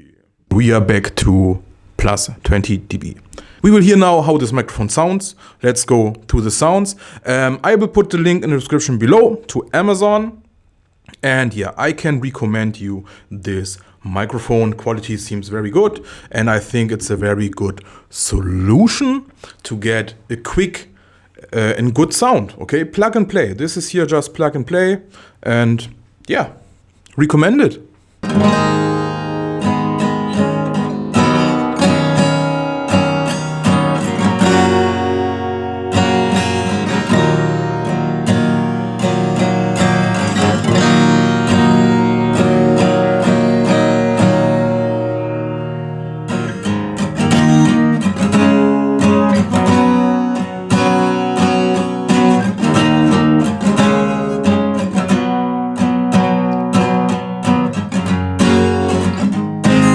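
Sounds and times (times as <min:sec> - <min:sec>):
guitar strummed and picked: 0:28.2 - 0:59.9.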